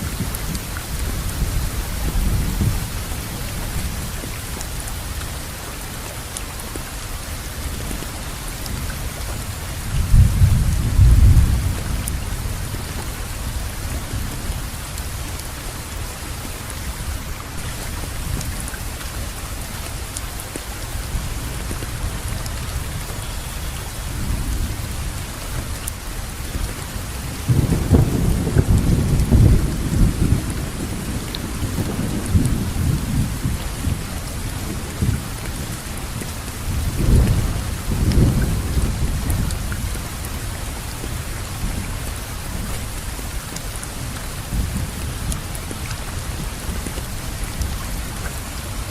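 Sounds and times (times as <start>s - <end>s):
steady rainfall: 0.0s - 48.9s.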